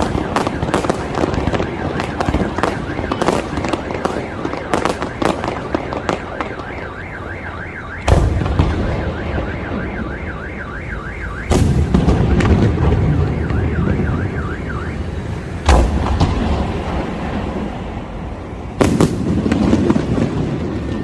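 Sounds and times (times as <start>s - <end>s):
car alarm warbling: 0.0s - 15.6s
fireworks booming: 0.0s - 21.0s.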